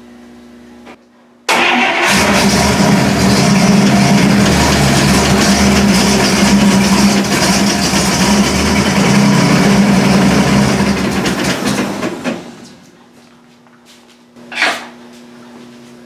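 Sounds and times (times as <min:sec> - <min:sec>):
car engine running: 0:02.0 - 0:12.8.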